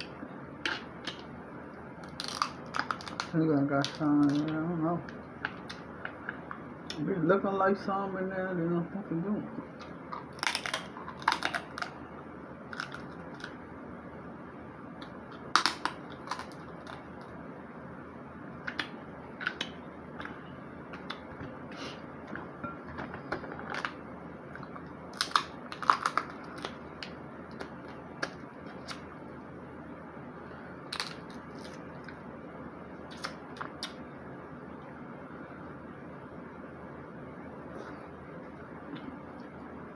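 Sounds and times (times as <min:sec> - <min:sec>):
shellfish shells cracking: 0:02.0 - 0:04.6, 0:09.8 - 0:12.0, 0:12.7 - 0:13.6, 0:15.0 - 0:17.3, 0:23.0 - 0:29.0, 0:30.9 - 0:31.8.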